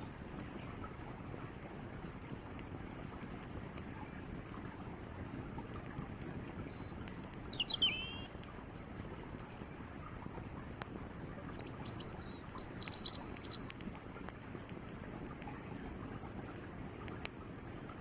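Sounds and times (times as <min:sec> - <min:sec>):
campfire crackling and popping: 0:00.0 - 0:18.0
creek flowing: 0:00.0 - 0:18.0
songbird chirping: 0:06.6 - 0:08.4, 0:11.5 - 0:14.8.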